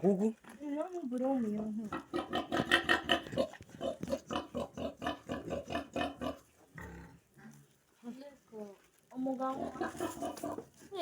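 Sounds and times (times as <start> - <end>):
pigs grunting: 1.9 - 7.5, 9.6 - 10.7.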